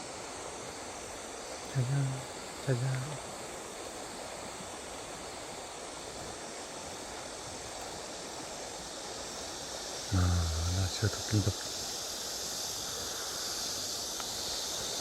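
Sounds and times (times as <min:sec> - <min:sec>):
man's voice: 0:10.1 - 0:11.6.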